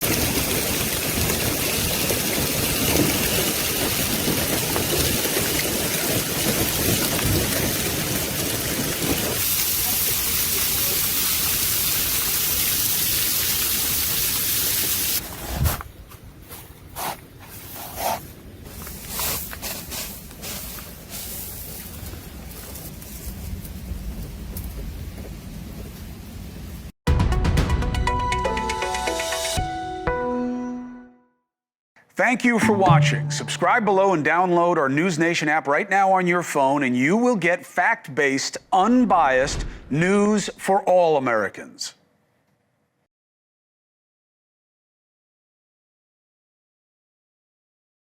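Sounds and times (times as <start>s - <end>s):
heavy hail and rain: 0.0s - 15.2s.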